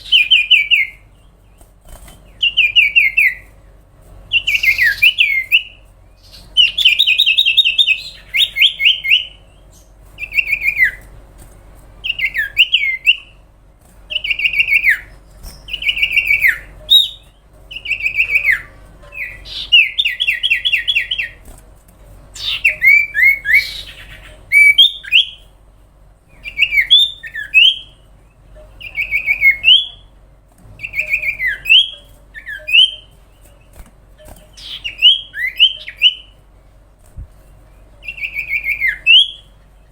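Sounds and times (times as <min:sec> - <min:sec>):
bird singing chirps and whistles: 0:00.0 - 0:01.1, 0:02.3 - 0:03.5, 0:04.3 - 0:11.1, 0:12.0 - 0:13.4, 0:14.1 - 0:21.4, 0:22.4 - 0:25.4, 0:26.4 - 0:28.0, 0:28.8 - 0:30.1, 0:30.8 - 0:33.2, 0:34.5 - 0:36.4, 0:38.0 - 0:39.6.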